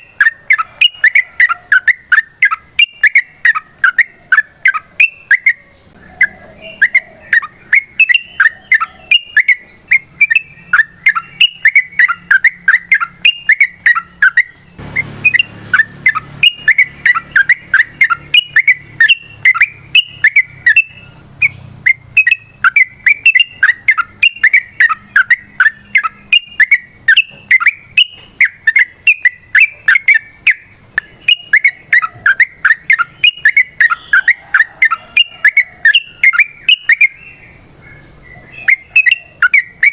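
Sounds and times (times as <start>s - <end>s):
bird singing bubbly chirps: 0.0s - 39.9s
steady high whine: 9.4s - 27.6s.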